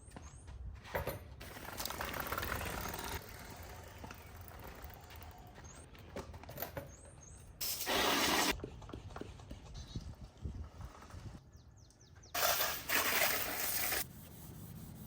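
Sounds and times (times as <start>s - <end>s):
water spray: 7.6s - 8.5s, 12.4s - 14.1s.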